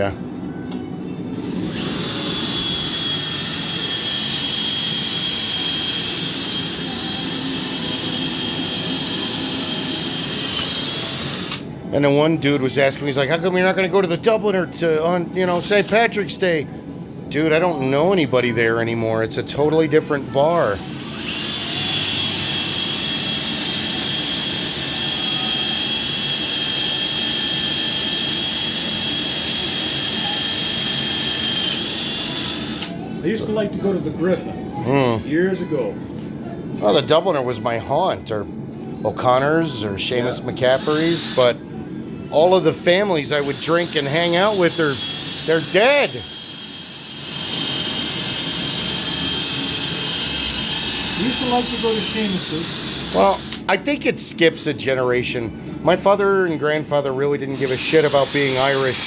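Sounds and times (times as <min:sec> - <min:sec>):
shop machine motor whining: 0:01.4 - 0:11.8, 0:20.2 - 0:33.6, 0:40.2 - 0:41.6, 0:42.5 - 0:53.7, 0:57.5 - 0:59.0.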